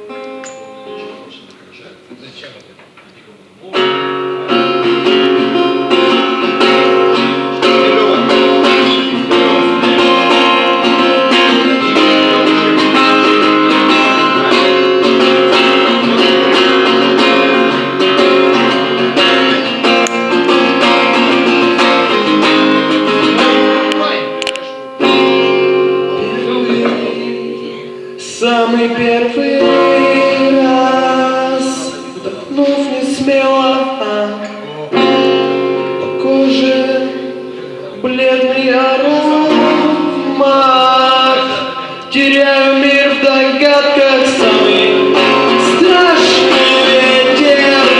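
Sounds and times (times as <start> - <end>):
guitar strumming chords: 0.0 - 1.5, 3.6 - 47.9.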